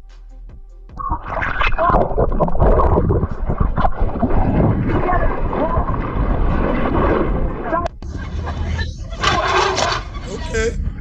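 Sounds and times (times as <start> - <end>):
wind buffeting microphone: 1.7 - 8.1.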